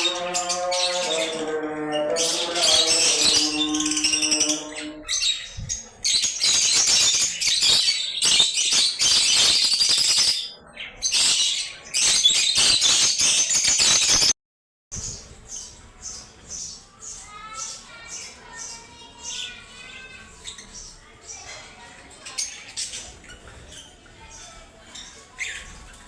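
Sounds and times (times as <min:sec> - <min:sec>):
lovebirds chattering and screeching: 0:00.0 - 0:14.3, 0:15.0 - 0:26.0.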